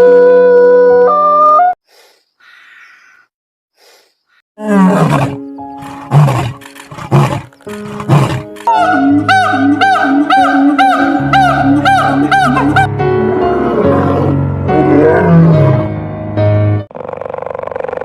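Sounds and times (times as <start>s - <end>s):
big cat roaring: 4.6s - 8.5s, 13.5s - 15.9s
background music: 4.6s - 16.9s.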